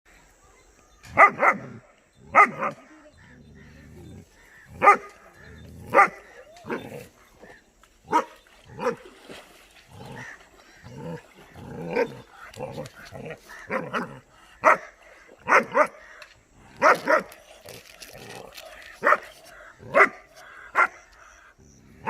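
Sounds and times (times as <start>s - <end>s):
puppy barking: 1.2s - 2.8s, 4.8s - 5.1s, 5.9s - 6.8s, 13.7s - 14.9s, 15.5s - 16.0s, 19.9s - 21.0s.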